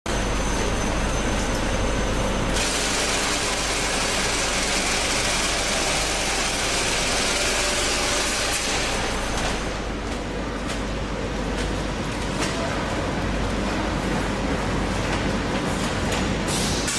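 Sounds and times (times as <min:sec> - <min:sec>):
packing machine humming: 0:00.1 - 0:16.9.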